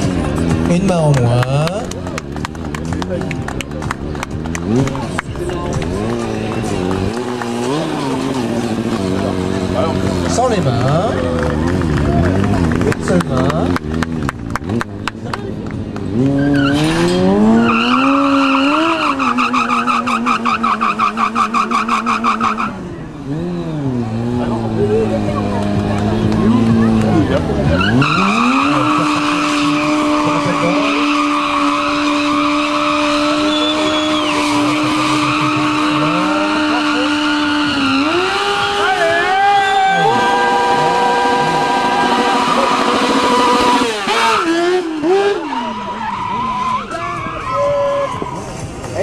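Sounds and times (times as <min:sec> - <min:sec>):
motorcycle engine at high revs: 0:00.0 - 0:45.8
tyre squealing on tarmac: 0:16.2 - 0:23.8, 0:27.6 - 0:49.0.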